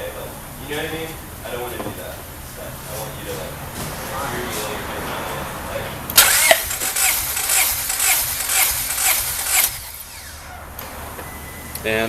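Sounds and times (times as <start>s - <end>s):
starter cranking engine: 6.1s - 11.9s.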